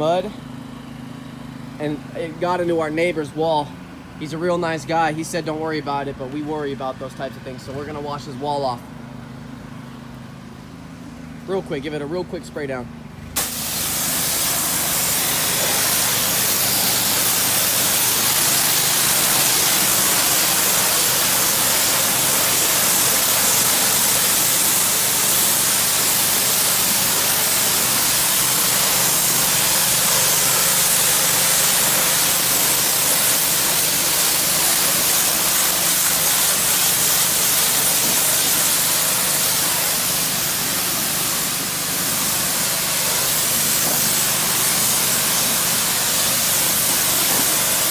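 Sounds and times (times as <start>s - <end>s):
high-pressure water jet hissing: 13.4s - 47.9s.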